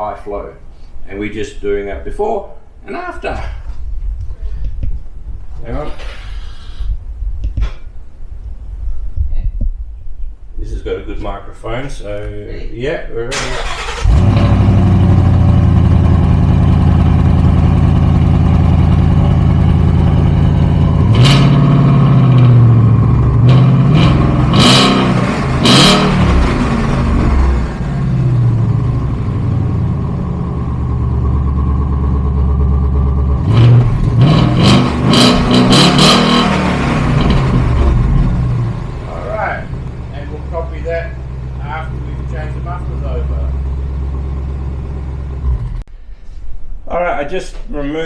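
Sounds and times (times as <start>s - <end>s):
car exhaust idling and revving: 14.0s - 45.9s.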